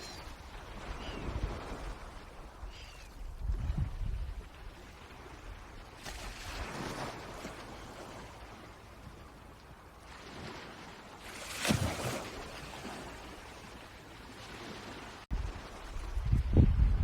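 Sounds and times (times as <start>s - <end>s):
wind buffeting microphone: 0.0s - 7.5s, 15.3s - 17.0s
water noise: 0.0s - 17.0s
water splashing: 10.1s - 16.1s.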